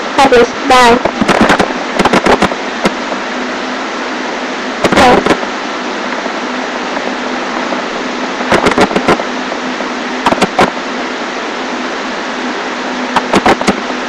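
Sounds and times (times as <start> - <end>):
microphone hiss with hum: 0.0 - 14.0
sharp clicks and knocks: 1.0 - 3.1, 8.5 - 9.3, 10.2 - 10.8, 13.1 - 14.0.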